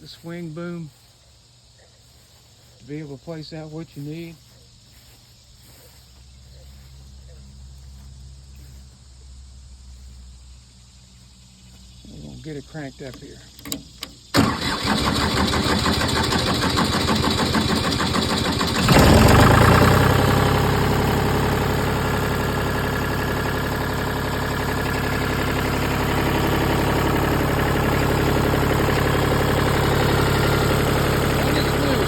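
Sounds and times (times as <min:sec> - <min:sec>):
chipper engine starting: 0:12.9 - 0:32.0.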